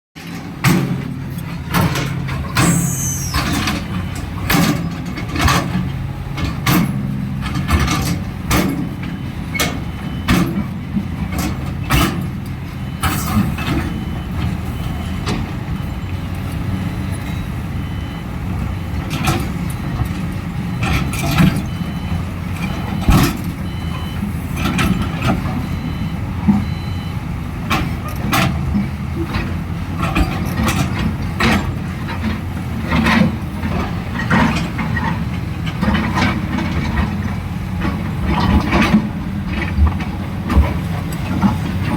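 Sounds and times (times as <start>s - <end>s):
diesel engine running: 0.2s - 41.9s
falling squeal: 2.6s - 3.7s.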